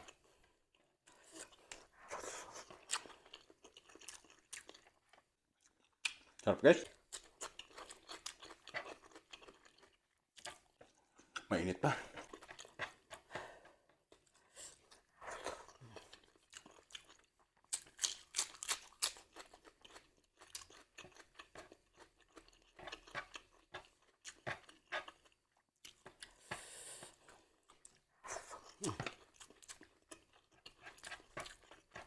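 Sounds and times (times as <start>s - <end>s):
person chewing crunchy food: 0.0s - 11.5s, 12.1s - 32.0s.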